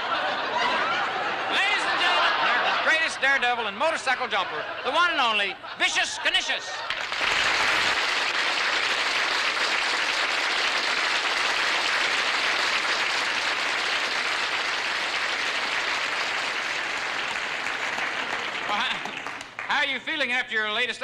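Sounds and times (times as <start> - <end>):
audience applauding: 6.4 - 19.9.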